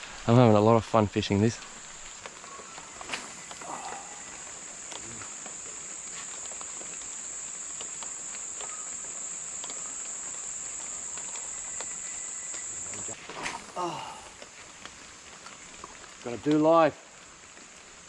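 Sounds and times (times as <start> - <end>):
insects droning: 0.0 - 18.0
faint clicks: 1.6 - 13.8.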